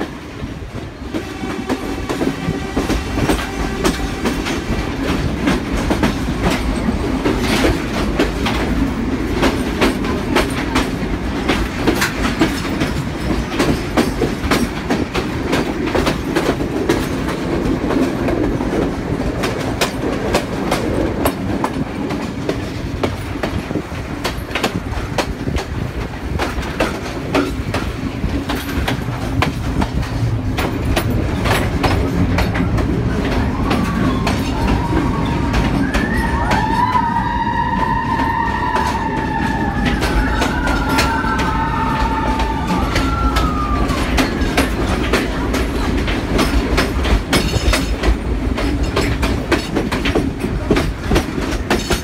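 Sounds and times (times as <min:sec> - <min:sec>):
train carriage rumble and clicks: 0:00.0 - 0:52.0
train wheels squealing: 0:33.3 - 0:44.8.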